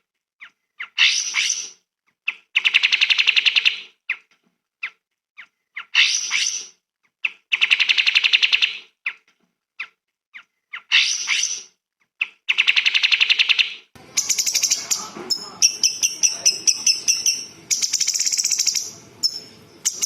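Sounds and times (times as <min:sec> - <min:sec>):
songbird trilling and chirping: 0:12.2 - 0:20.0.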